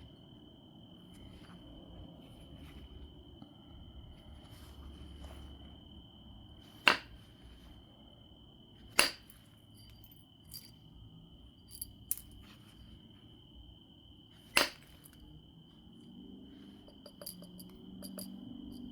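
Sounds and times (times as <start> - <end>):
stone flakes struck with glassy clinks: 16.9 - 18.9.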